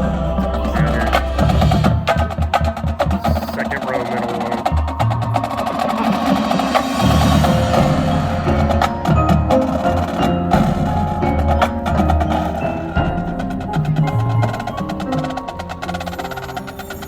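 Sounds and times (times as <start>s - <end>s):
marching band playing: 0.0s - 17.0s
sharp percussion strikes: 0.0s - 17.0s
ringing mallet notes: 4.2s - 17.0s.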